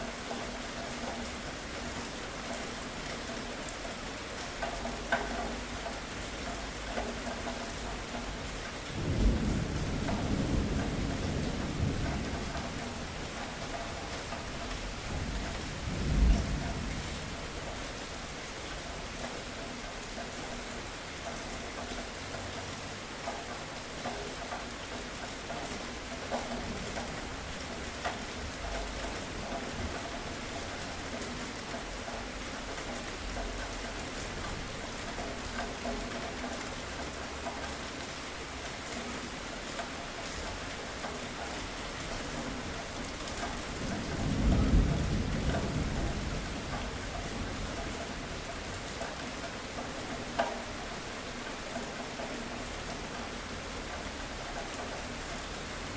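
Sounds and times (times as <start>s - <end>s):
steady rain: 0.0s - 55.9s
thunder: 8.9s - 14.2s, 15.1s - 17.8s, 43.5s - 48.4s.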